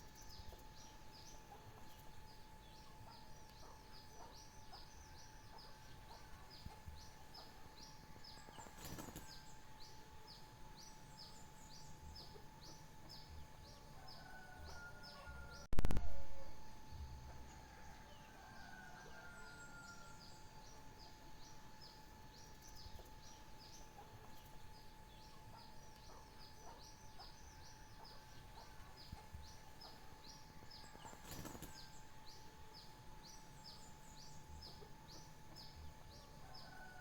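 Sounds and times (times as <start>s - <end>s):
faint steady hum: 0.0s - 37.0s
brief crackle: 15.8s - 16.2s.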